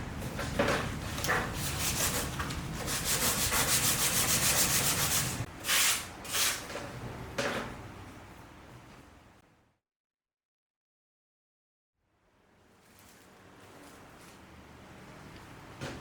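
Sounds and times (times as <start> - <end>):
sandpaper rubbing: 1.5 - 6.6.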